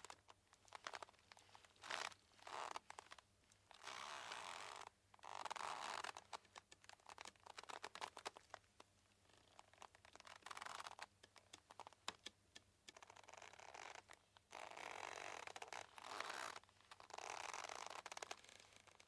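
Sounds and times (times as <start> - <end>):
sharp ticks: 10.9 - 13.2.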